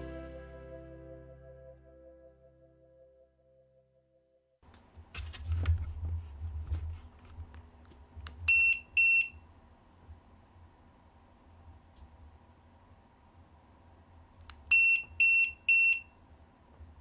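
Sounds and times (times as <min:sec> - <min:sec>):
handling knocks and clicks: 0:04.6 - 0:08.5.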